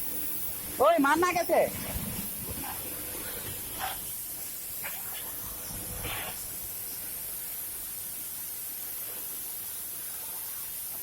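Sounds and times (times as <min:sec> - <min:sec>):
water spraying with steady hiss: 0:00.0 - 0:11.0.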